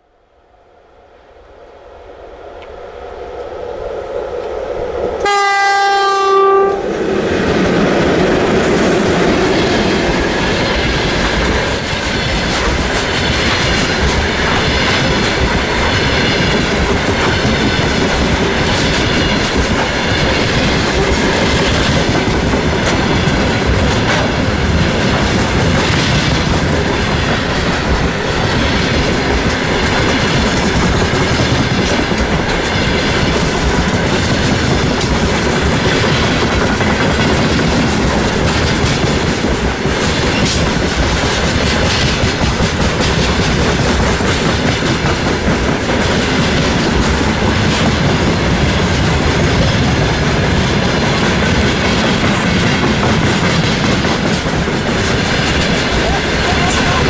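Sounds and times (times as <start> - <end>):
train wheels rumbling on rails: 1.8 - 57.0
locomotive horn: 5.2 - 6.9.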